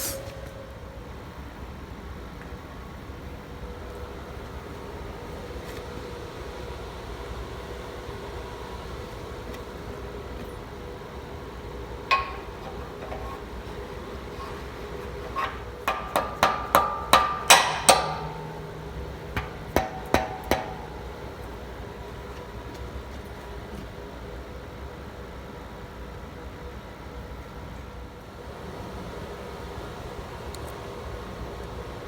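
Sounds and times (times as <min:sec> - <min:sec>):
steady hum: 0:00.0 - 0:24.6
hammer striking metal: 0:12.1 - 0:22.0.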